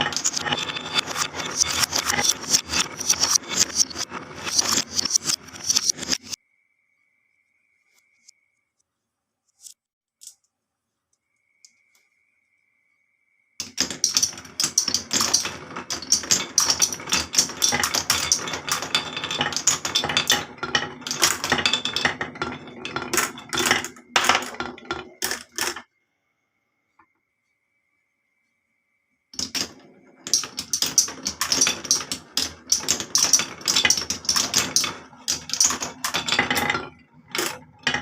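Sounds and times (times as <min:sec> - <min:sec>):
marbles rattling down a marble run: 0:00.0 - 0:06.4, 0:13.6 - 0:25.9, 0:29.4 - 0:38.0.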